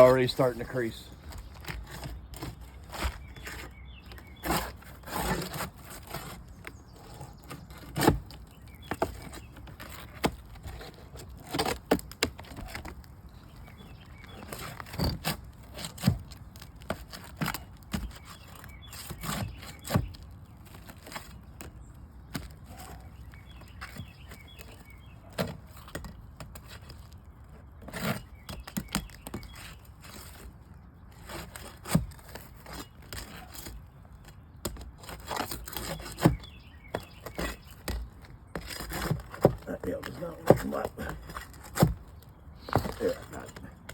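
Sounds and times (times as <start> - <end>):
roof shingles being pried up: 0.0 - 43.9.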